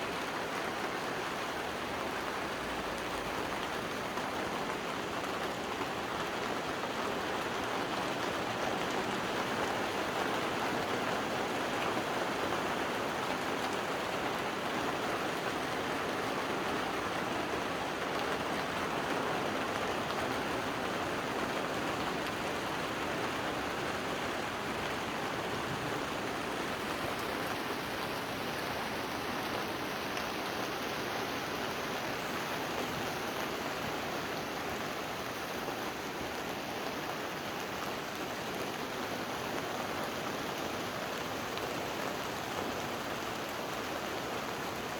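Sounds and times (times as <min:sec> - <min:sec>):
water rushing: 0:22.4 - 0:44.9.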